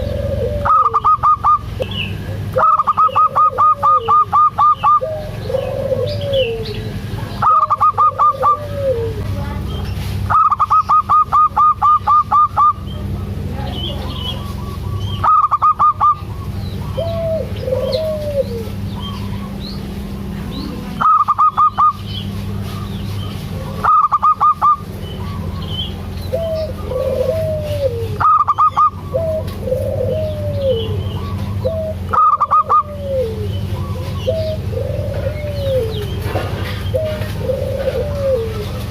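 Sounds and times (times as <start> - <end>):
soft arching coos: 0.0 - 1.6, 2.3 - 9.4, 14.4 - 19.6, 26.3 - 38.9
dove rapid staccato calls: 0.0 - 38.9.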